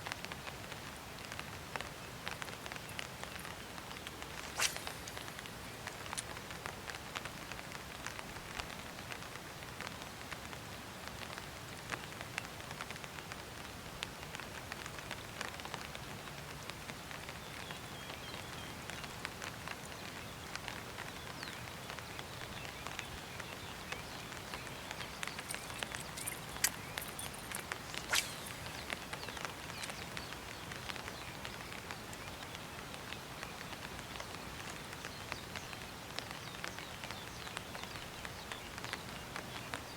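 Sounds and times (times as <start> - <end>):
light rain hiss: 0.0 - 39.9
raindrop ticks: 14.0 - 39.8.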